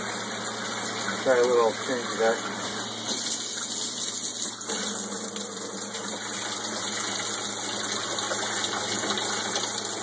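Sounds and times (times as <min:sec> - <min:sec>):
electric water pump humming: 0:00.0 - 0:10.0
shower spraying water: 0:00.0 - 0:10.0.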